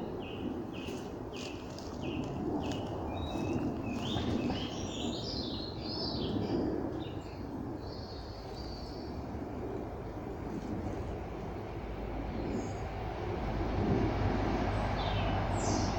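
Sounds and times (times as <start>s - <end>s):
birds chirping and singing: 0.0s - 9.1s
low background rumble: 0.0s - 15.9s.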